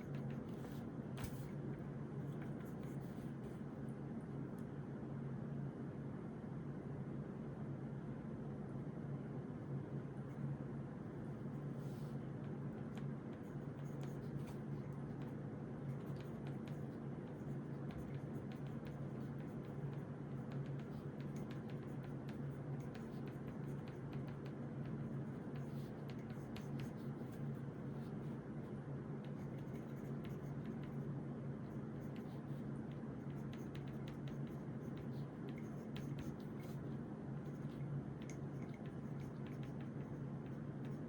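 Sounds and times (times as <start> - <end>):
pen scratching on paper: 0.0 - 1.6, 12.8 - 28.4, 29.2 - 41.0.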